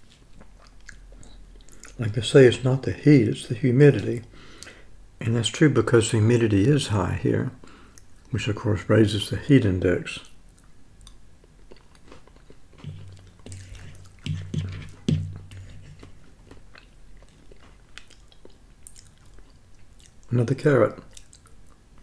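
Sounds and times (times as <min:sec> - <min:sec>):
person chewing soft food: 0:00.0 - 0:02.0, 0:10.5 - 0:20.3, 0:21.0 - 0:22.0
spoon scraping ceramic bowl: 0:12.8 - 0:16.1.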